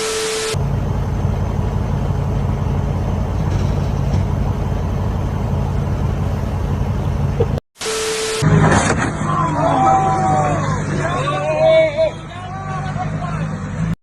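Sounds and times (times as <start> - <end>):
road noise: 0.0 - 14.0
vehicle engine rumble: 0.5 - 7.6.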